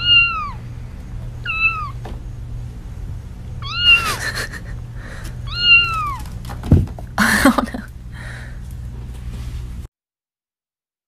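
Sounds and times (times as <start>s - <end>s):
kitten mewing: 0.0s - 0.6s, 1.4s - 2.0s, 3.6s - 6.2s
steady low hum: 0.0s - 9.9s.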